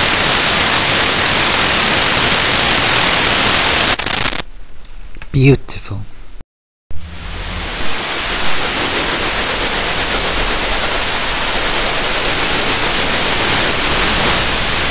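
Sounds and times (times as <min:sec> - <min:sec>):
steady noise hiss: 0:07.0 - 0:14.9.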